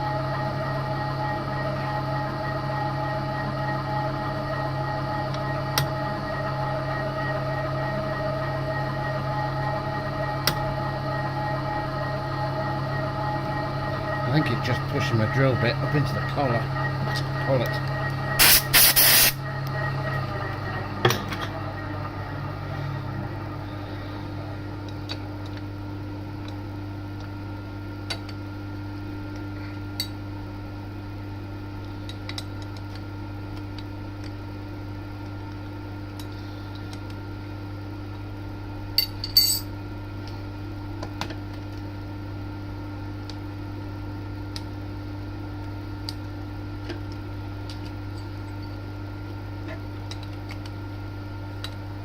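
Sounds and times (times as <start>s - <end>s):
milling machine humming: 0.0s - 52.0s
loud hiss blasts: 18.4s - 19.4s.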